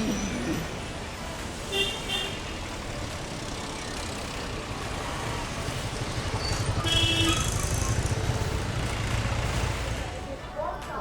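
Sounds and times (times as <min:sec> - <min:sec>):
vehicle engine rumble: 0:02.4 - 0:10.7.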